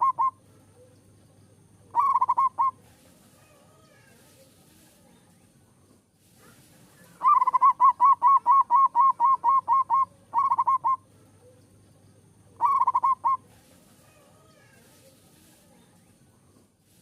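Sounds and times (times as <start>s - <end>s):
dove cooing: 0.0s - 1.0s, 1.8s - 4.1s, 7.1s - 11.6s, 12.4s - 15.7s.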